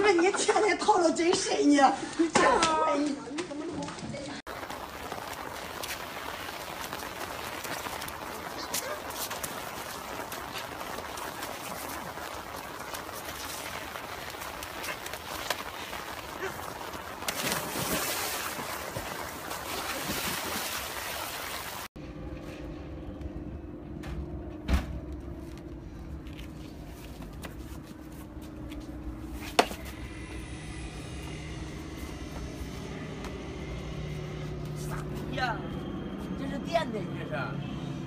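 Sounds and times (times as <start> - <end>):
water splashing: 4.5 - 22.0
steady low hum: 22.0 - 38.0.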